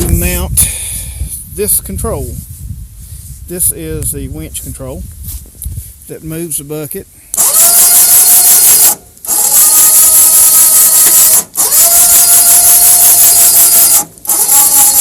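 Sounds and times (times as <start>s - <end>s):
electric winch motor whining: 7.3s - 15.0s.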